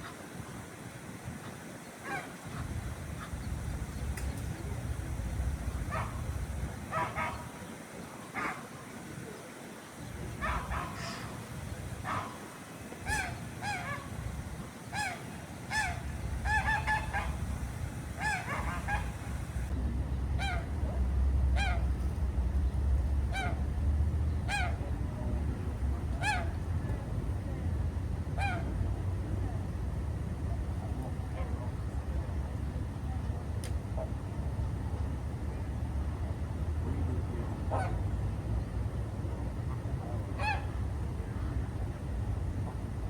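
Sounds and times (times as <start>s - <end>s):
waterfowl honking: 0.0s - 19.7s
low steady rumble: 2.0s - 7.8s, 10.0s - 43.0s.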